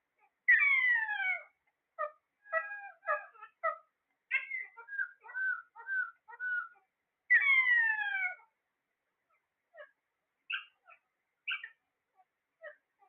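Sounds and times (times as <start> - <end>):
parrots calling: 0.5 - 8.5, 9.7 - 11.8.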